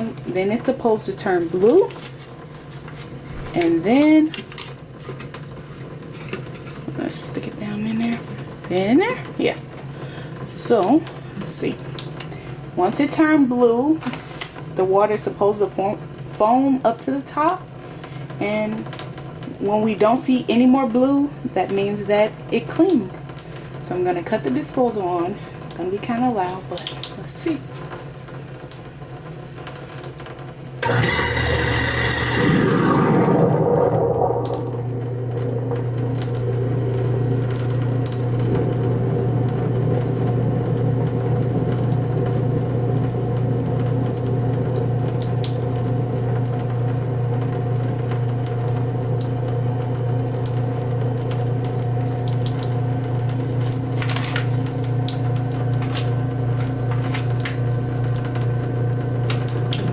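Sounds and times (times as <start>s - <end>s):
garbage disposal grinding: 0.0s - 14.8s, 30.7s - 59.9s
disposal motor humming: 30.8s - 59.9s.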